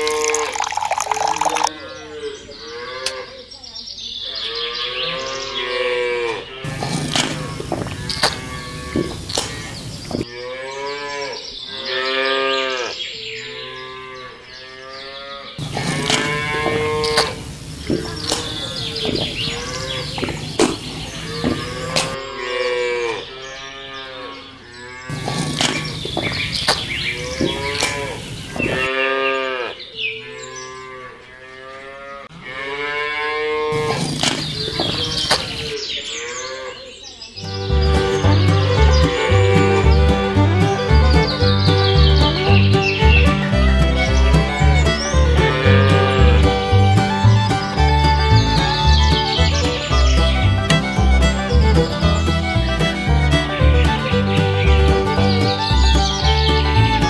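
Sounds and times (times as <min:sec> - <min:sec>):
cow mooing: 0:04.5 - 0:13.0, 0:13.7 - 0:20.3, 0:21.1 - 0:26.0, 0:27.2 - 0:29.8, 0:30.5 - 0:34.1, 0:45.4 - 0:46.7
sharp clicks: 0:09.0 - 0:10.2.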